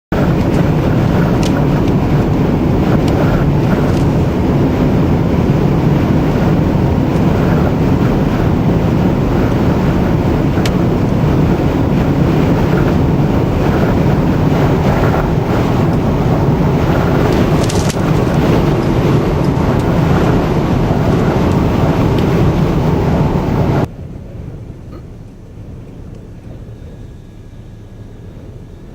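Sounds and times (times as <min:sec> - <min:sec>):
strong wind on microphone: 0:00.1 - 0:24.8.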